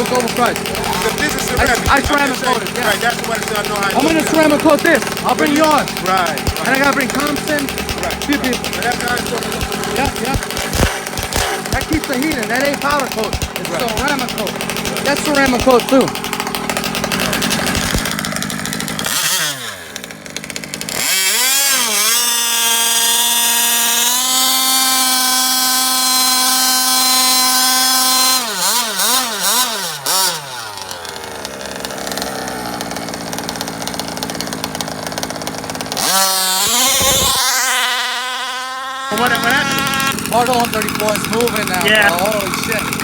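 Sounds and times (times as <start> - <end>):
model car engine revving: 0.0 - 43.0.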